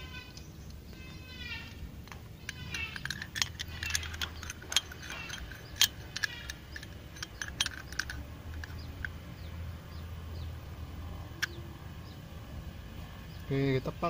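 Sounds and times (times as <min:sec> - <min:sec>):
faint birds chirping: 0:00.0 - 0:14.0
metal hand tools clinking: 0:02.4 - 0:09.2.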